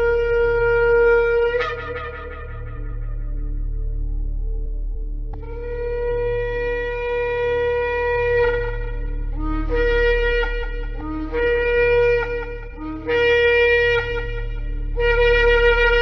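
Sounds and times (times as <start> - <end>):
shofar blasts: 0.0 - 3.8, 5.4 - 16.0.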